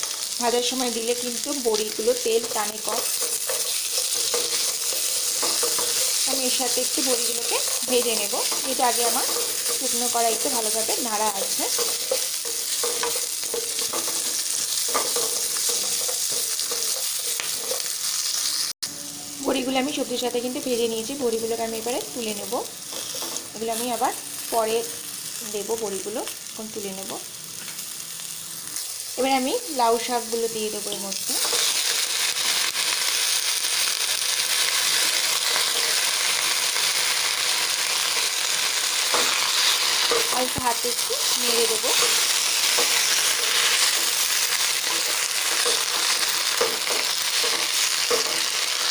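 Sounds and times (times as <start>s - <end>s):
vegetables sizzling in oil: 0.0s - 48.9s
spatula scraping: 2.7s - 18.6s.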